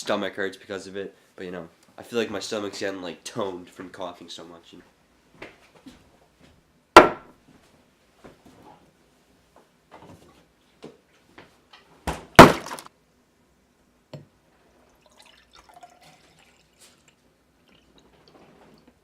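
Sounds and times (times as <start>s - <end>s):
container thunk: 12.1s - 12.9s.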